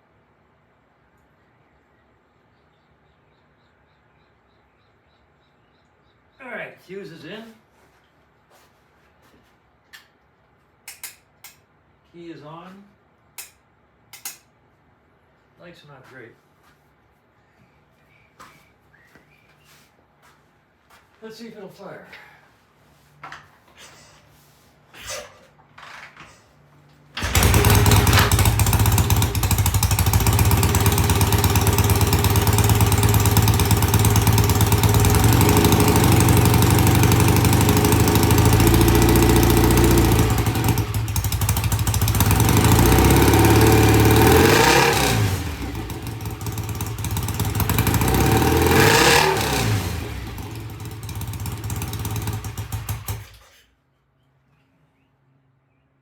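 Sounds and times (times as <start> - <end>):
motorcycle engine starting and revving: 27.2 - 53.6.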